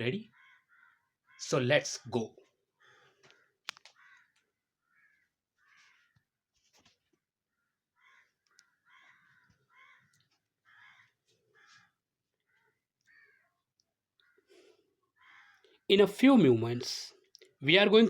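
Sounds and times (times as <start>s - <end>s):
crows cawing: 0.3s - 1.5s, 2.7s - 6.4s, 7.5s - 15.8s.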